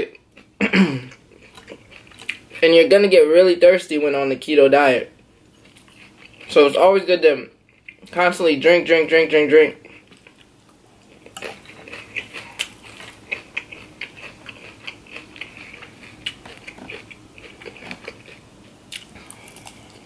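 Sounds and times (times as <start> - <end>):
chewing crunchy salad: 1.1 - 2.7, 5.4 - 6.8, 7.6 - 8.3, 9.7 - 20.0.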